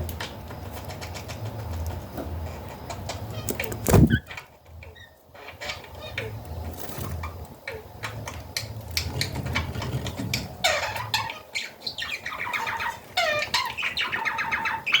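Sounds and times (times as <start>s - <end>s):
budgerigars chattering: 9.4s - 15.0s.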